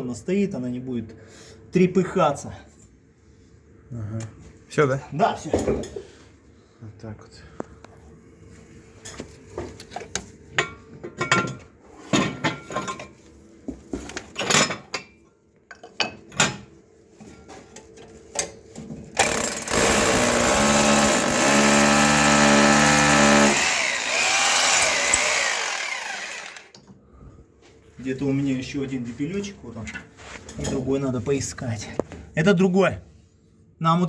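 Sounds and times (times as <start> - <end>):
power drill drilling: 19.2 - 26.7.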